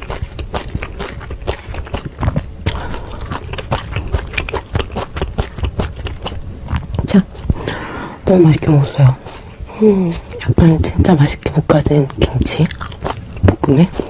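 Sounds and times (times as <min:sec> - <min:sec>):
wet chewing smacks: 0:00.0 - 0:07.8, 0:11.9 - 0:14.0.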